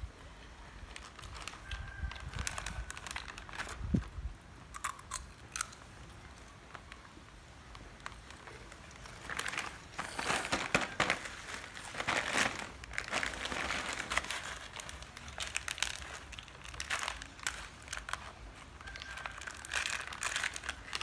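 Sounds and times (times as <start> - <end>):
plastic snack bag crinkling: 0.8 - 4.1, 4.8 - 21.0.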